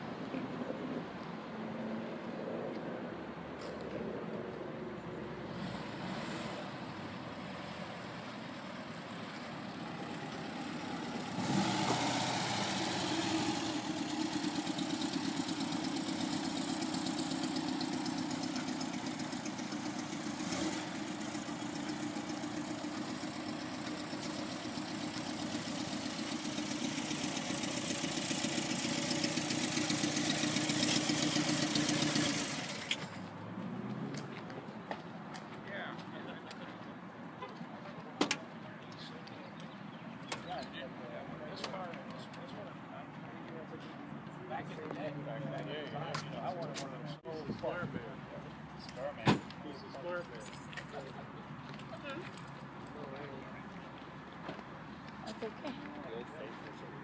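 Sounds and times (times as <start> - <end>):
car engine idling: 7.4 - 33.2.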